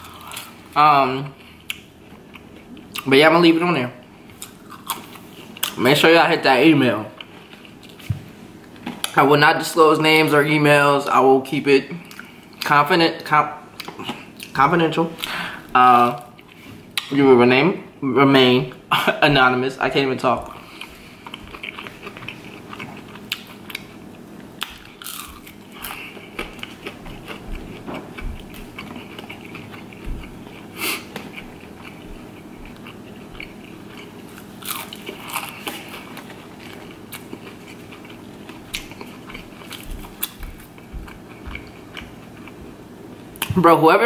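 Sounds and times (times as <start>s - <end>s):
biting and chewing food: 4.3s - 5.8s, 20.4s - 42.8s.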